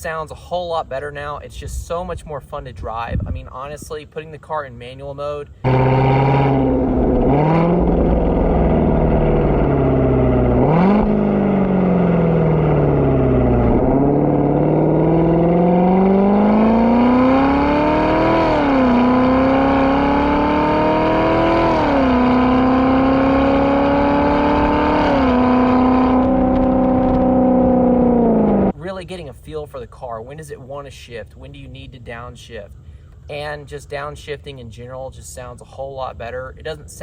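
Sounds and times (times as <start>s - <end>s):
car engine revving through gears: 5.6s - 28.8s.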